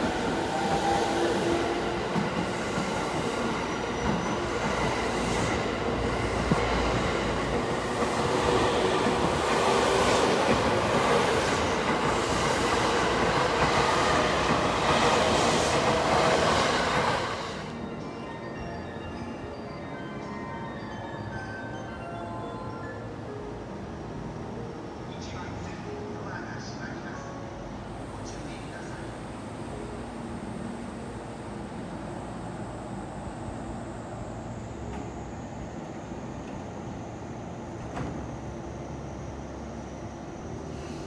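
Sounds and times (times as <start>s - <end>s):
train wheels running on rails: 0.0s - 17.9s, 37.6s - 38.4s.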